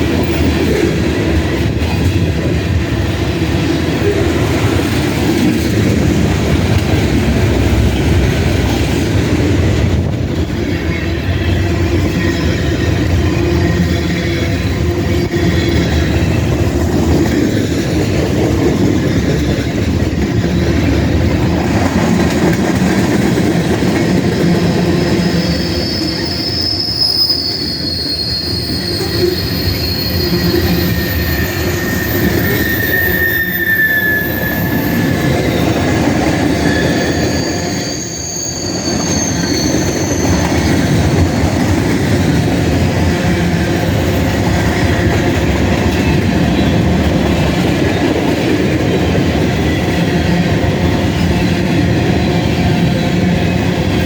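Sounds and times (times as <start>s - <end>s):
freight cars rumbling on rails: 0.0s - 54.0s
high-pitched wheel squeal: 25.0s - 41.4s.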